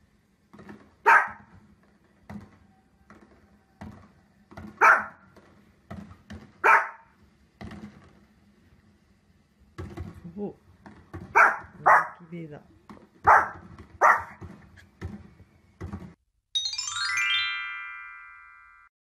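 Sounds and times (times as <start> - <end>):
small dog barking: 1.0 - 1.5, 4.8 - 5.2, 6.6 - 7.1, 11.3 - 12.3, 13.2 - 14.4.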